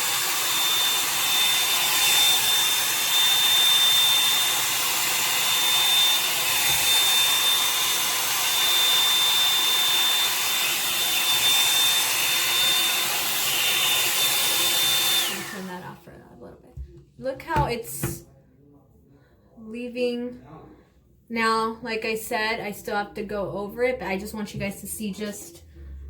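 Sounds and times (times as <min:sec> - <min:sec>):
hair dryer brush blowing: 0:00.0 - 0:15.8.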